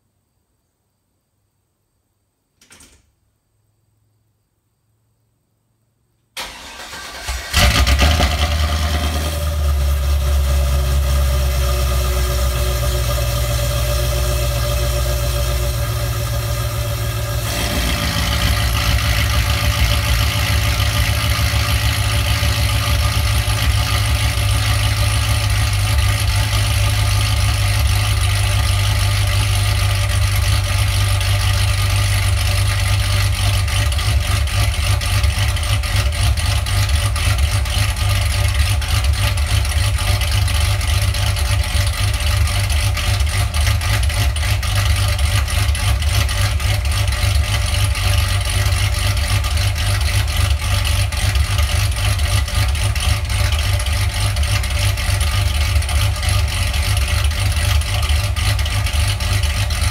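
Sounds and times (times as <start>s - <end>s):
starter motor cranking: 6.4s - 8.0s
car engine idling: 6.4s - 59.9s.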